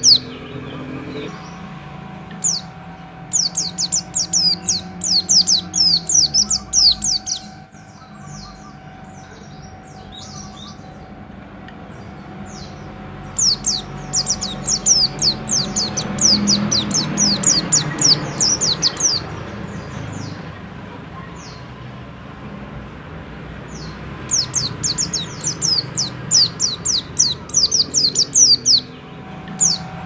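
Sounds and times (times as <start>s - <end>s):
bird singing fast high notes: 2.4s - 11.2s, 12.6s - 19.4s.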